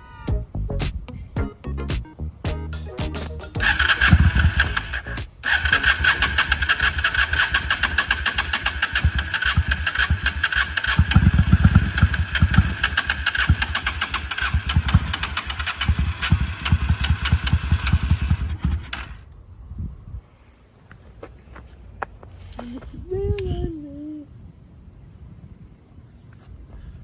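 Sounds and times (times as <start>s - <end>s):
motorcycle engine starting and running: 2.7s - 19.2s.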